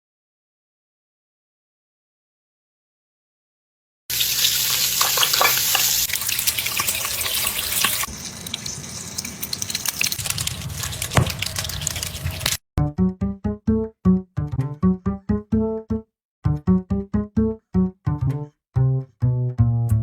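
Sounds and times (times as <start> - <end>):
fizzing liquid crackling: 4.1 - 12.6.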